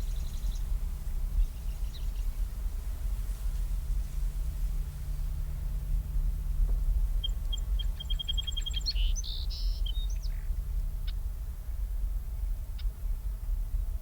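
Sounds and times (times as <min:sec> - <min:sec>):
songbird singing: 0:00.0 - 0:02.4, 0:07.2 - 0:10.5.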